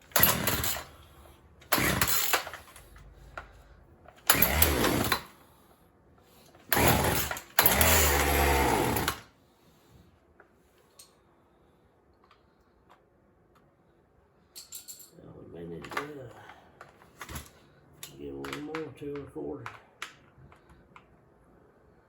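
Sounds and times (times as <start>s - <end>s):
chainsaw engine sputtering: 0.1s - 0.9s, 1.7s - 2.6s, 4.3s - 5.3s, 6.7s - 9.2s.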